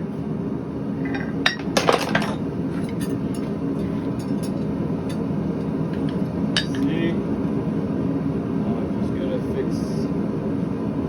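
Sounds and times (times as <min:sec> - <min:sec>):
steady low rumble: 0:00.0 - 0:11.0
metal tools clinking and scraping: 0:01.0 - 0:04.7, 0:06.0 - 0:06.9.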